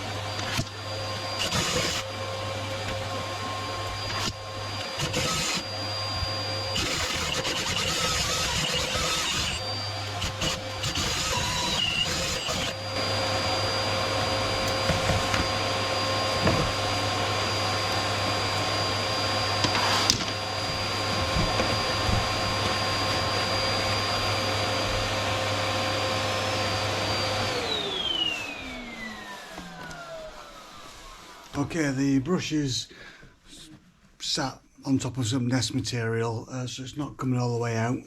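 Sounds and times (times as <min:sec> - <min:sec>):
vacuum motor whining: 0:00.0 - 0:31.8
knocks and thuds: 0:20.8 - 0:22.8.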